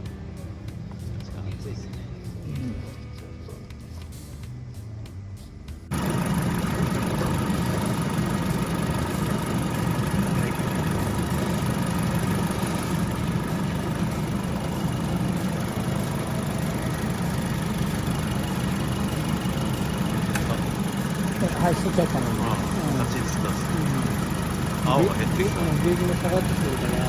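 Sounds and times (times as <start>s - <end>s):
car engine idling: 0.0s - 27.0s
air-conditioning running: 5.9s - 27.0s.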